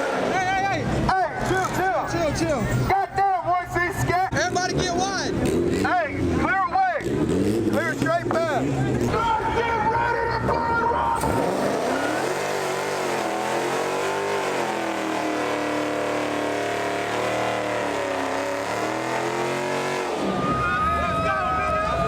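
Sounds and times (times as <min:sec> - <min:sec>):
car engine revving hard: 0:00.0 - 0:01.1, 0:04.4 - 0:09.2, 0:11.2 - 0:20.6.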